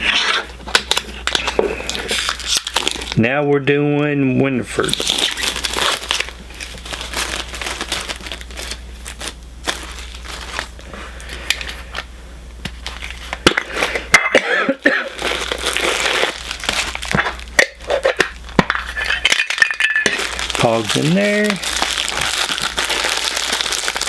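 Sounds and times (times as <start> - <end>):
low electrical hum: 0.0 - 24.0
packaging torn and crinkled: 0.7 - 3.2, 4.8 - 10.8, 14.7 - 24.0.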